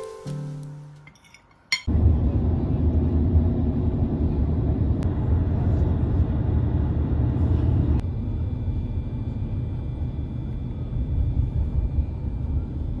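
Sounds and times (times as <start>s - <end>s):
piano music: 0.0s - 1.2s
steady low rumble: 1.9s - 13.0s.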